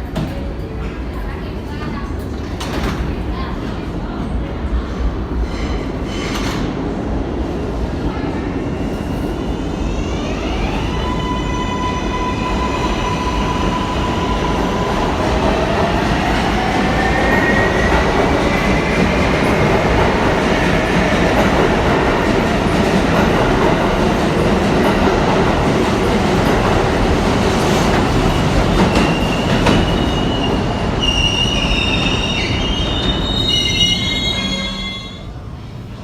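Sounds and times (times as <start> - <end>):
subway train running on track: 0.0 - 36.0
wheel squeals: 29.0 - 35.2.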